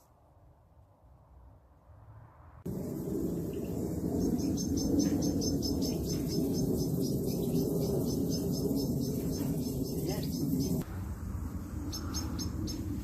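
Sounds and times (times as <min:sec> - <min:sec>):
steady low rumble: 0:00.3 - 0:13.0
small birds chirping: 0:02.8 - 0:10.8, 0:11.8 - 0:13.0.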